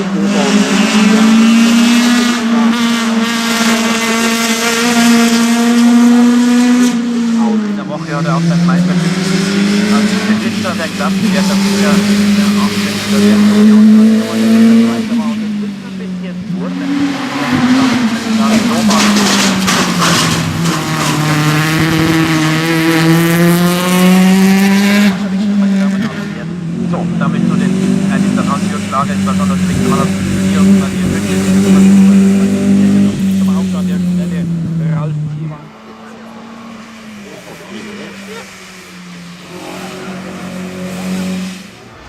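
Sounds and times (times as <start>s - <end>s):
race car engine at high revs: 0.0s - 42.0s.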